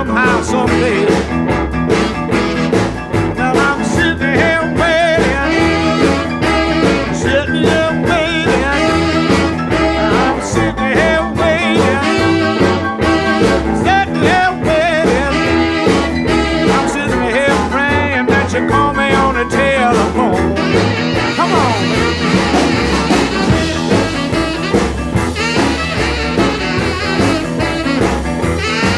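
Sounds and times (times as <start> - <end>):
blues rock instrumental: 0.0 - 28.9.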